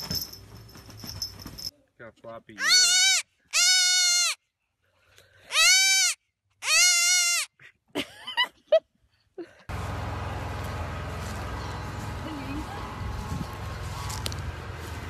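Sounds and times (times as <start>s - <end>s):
goat kid bleating: 2.6s - 4.4s, 5.5s - 7.5s.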